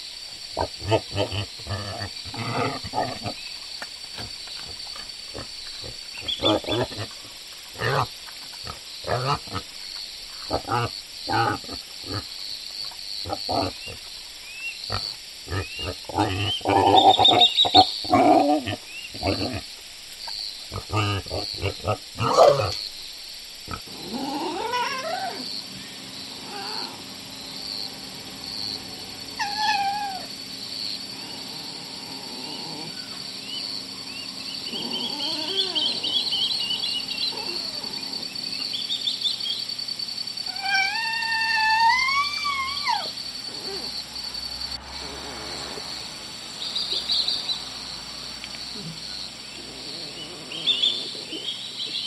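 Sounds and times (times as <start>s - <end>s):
animal wailing calls: 24.1s - 25.5s, 26.4s - 27.1s, 29.4s - 30.3s, 34.7s - 38.4s, 40.5s - 44.0s.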